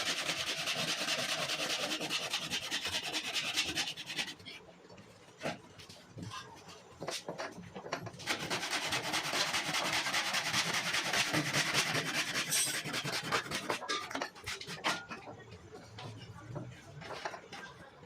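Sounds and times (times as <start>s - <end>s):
sanding-like scraping: 0.0s - 4.5s, 8.2s - 15.0s.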